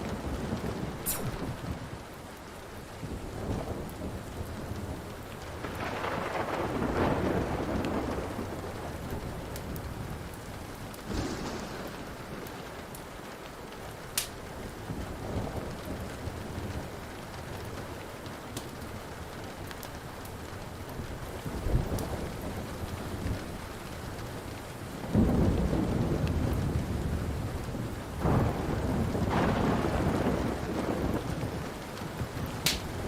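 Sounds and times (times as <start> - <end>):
steady rain: 0.0 - 33.0
wood fire crackling: 0.0 - 33.0
rolling thunder: 3.1 - 14.0, 25.0 - 33.0.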